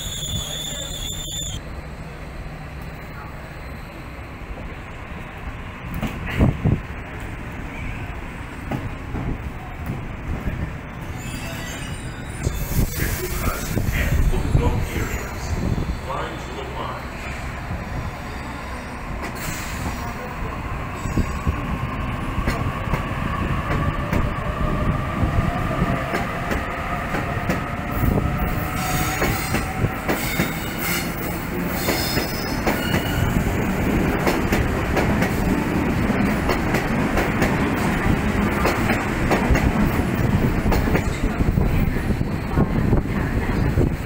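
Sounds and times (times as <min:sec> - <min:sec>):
wheels squealing: 0:00.0 - 0:01.6, 0:11.0 - 0:13.4
train wheels rumbling and clacking: 0:00.0 - 0:44.0.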